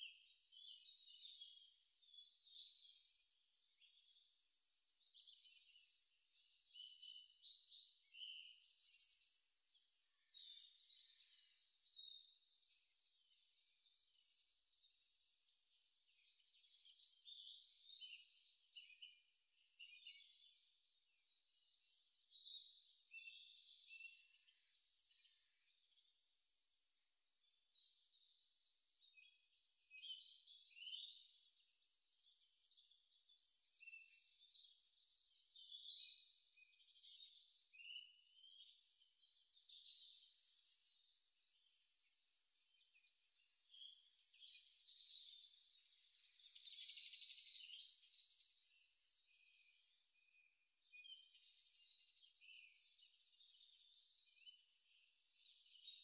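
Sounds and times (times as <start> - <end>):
high bird chatter: 43.3 - 49.8.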